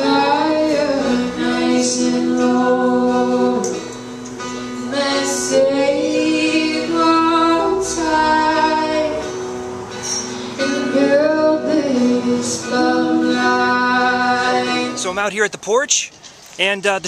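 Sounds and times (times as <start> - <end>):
person singing: 0.0 - 3.8, 10.6 - 15.0
plucked acoustic guitar: 0.0 - 15.3.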